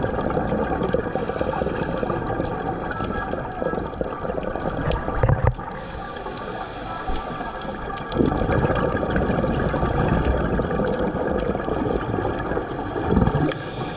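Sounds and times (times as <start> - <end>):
bubbles gurgling: 0.0 - 13.9
underwater regulator breathing: 0.8 - 3.5, 5.6 - 8.4, 9.1 - 11.0, 13.1 - 13.9.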